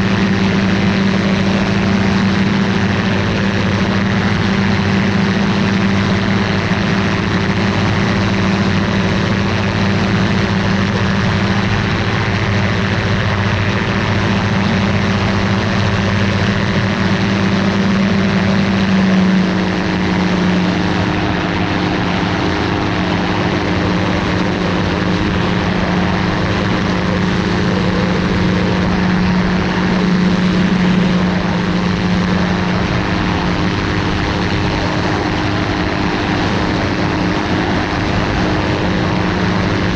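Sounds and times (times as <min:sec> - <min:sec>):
ultralight aircraft engine and propeller: 0:00.0 - 0:39.9.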